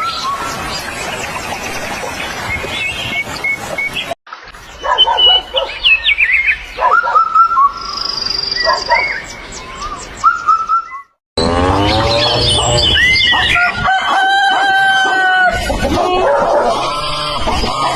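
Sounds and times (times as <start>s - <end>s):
birds chirping and whistling: 0.0s - 14.0s
high steady bird trill: 2.8s - 13.7s
rooster crowing: 13.5s - 15.6s.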